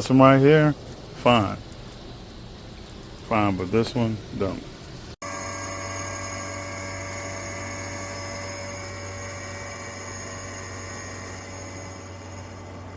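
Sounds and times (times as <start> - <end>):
low electric hum: 0.0 - 12.9
high whining machine tones: 5.2 - 12.9.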